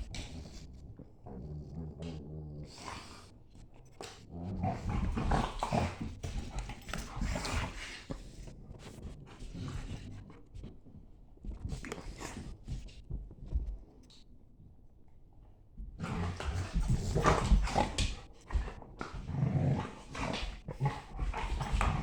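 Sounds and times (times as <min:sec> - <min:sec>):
dogs play-fighting vocal noises: 0:03.9 - 0:10.2, 0:16.0 - 0:22.0.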